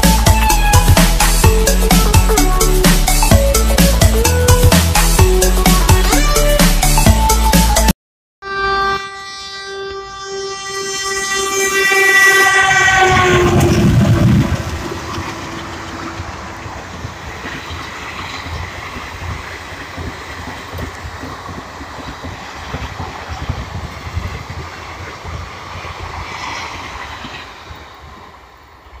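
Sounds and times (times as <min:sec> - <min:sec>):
train wheels rumbling and clattering: 0:12.5 - 0:29.0.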